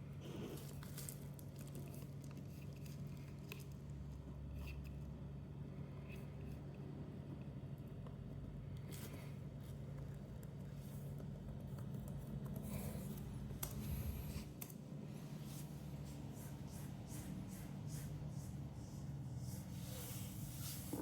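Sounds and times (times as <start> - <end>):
steady low hum: 3.8 - 21.0
light scratching and rubbing: 19.5 - 21.0.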